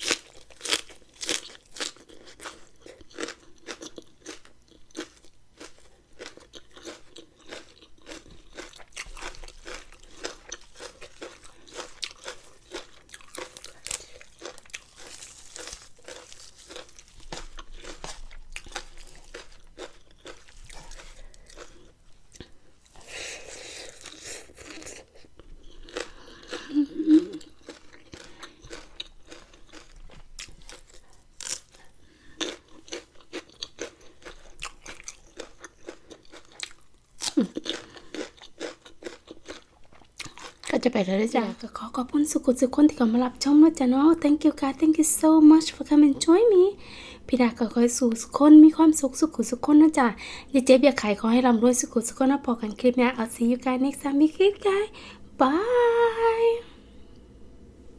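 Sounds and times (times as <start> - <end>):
person chewing and crunching food: 0.0 - 42.2.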